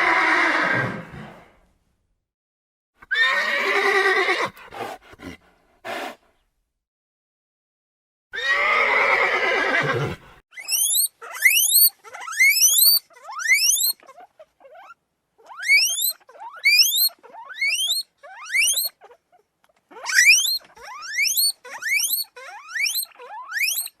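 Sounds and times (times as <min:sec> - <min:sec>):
loud animal call: 0:08.4 - 0:19.2, 0:19.9 - 0:24.0
short squeaky rising animal calls: 0:08.4 - 0:24.0.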